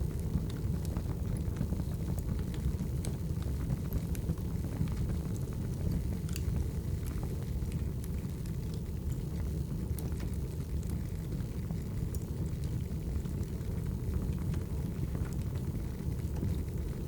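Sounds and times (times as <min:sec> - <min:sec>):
fire rumbling: 0:00.0 - 0:17.0
logs crackling and popping: 0:00.0 - 0:17.0.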